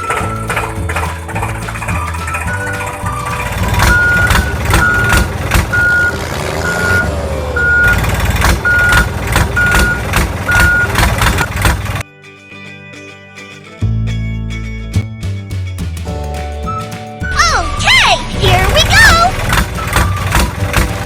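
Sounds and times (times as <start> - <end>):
low rumble and clatter: 0.0 - 12.0, 18.5 - 21.0
truck reversing alarm beeping: 2.0 - 11.1.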